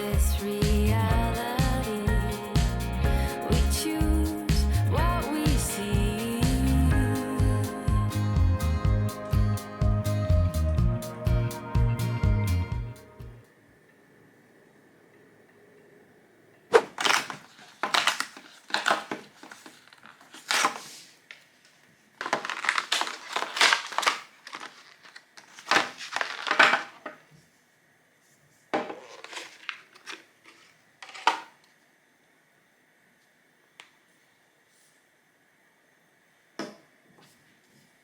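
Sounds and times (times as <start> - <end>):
rustling and crinkling handling: 16.8 - 27.6, 28.2 - 31.6.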